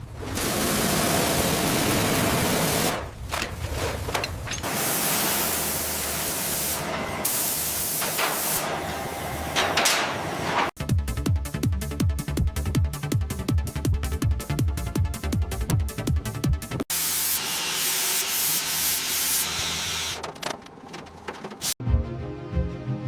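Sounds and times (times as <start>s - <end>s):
high-pressure spray hissing: 4.6s - 8.8s, 16.9s - 20.2s.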